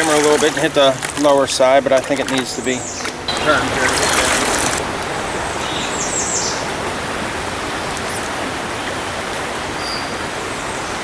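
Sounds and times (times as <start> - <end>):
river water rushing: 0.0 - 11.0
bird chirping: 2.2 - 4.8.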